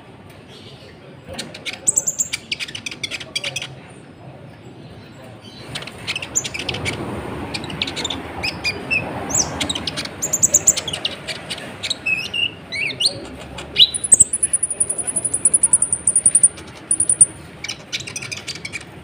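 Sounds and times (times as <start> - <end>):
sunbird chirps and trills: 13.8 - 18.4.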